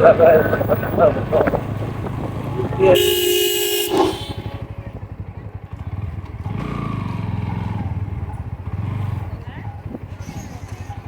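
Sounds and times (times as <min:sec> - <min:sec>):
motorcycle engine running: 0:00.0 - 0:11.0
vehicle horn: 0:01.0 - 0:04.8.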